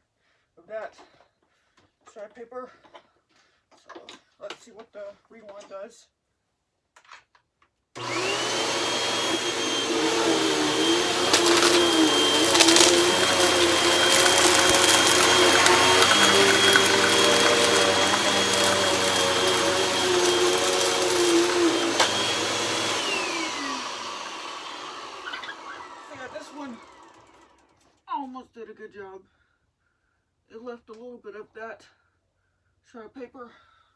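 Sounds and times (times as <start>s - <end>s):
vacuum cleaner motor whining: 8.0s - 27.5s
clicks of paper in vacuum: 8.8s - 23.1s.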